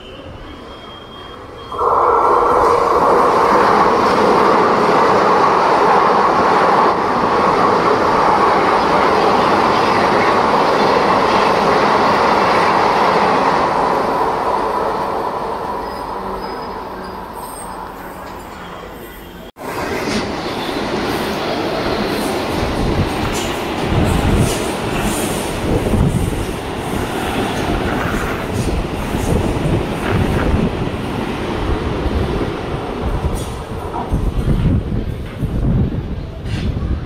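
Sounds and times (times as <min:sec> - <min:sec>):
train passing: 0:00.0 - 0:37.0.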